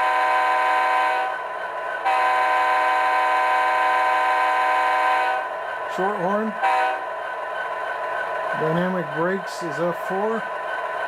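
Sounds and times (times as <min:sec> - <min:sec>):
model train horn from small speaker: 0:00.0 - 0:01.3, 0:02.1 - 0:05.4, 0:06.6 - 0:07.0.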